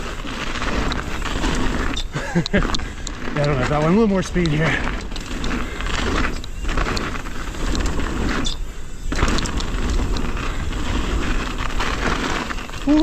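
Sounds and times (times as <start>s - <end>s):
bike tyre roar: 0.0s - 13.0s
chain and suspension rattle: 0.0s - 13.0s.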